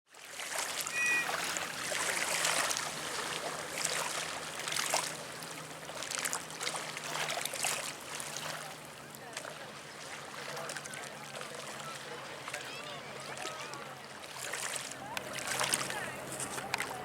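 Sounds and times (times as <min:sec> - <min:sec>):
water splashing and trickling: 0:00.1 - 0:17.0
brief high squeak: 0:00.9 - 0:01.6.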